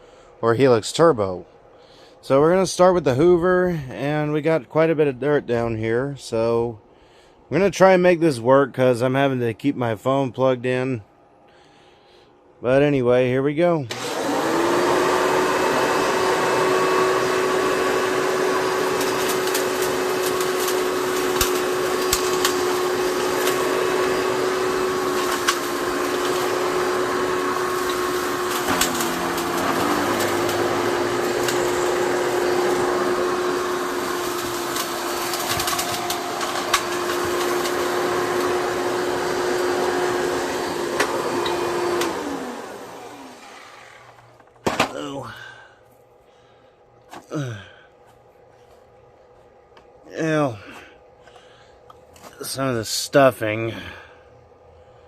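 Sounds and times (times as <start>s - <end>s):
motor winding down: 13.9s - 44.4s
vacuum cleaner running: 13.9s - 44.8s
debris clicking in vacuum: 18.5s - 38.8s.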